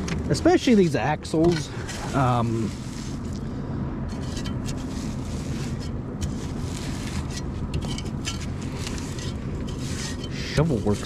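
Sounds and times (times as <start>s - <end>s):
shovel scraping frozen manure: 0.8s - 3.4s, 4.1s - 11.0s.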